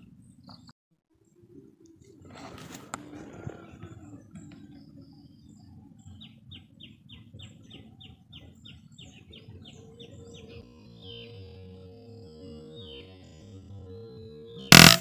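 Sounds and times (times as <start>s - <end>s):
synthesizer background music: 9.2s - 15.0s.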